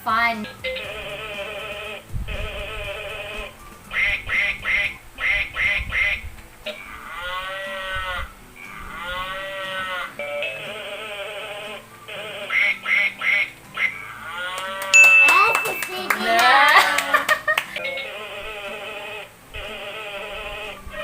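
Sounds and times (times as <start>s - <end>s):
drawn-out animal calls: 0.8s - 14.9s, 18.0s - 21.0s
duck quacks: 2.6s - 14.9s.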